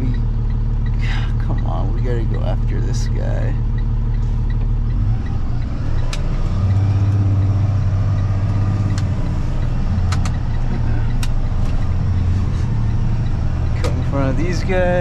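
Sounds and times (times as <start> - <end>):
truck engine running: 0.0 - 15.0
sharp clicks: 3.7 - 15.0.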